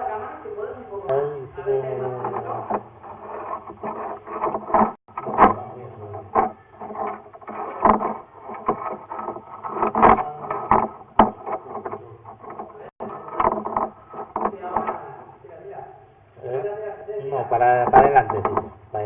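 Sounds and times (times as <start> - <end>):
steady noise: 0.0 - 19.0
camera knocking and scraping in pipe: 1.8 - 15.2, 17.8 - 18.8.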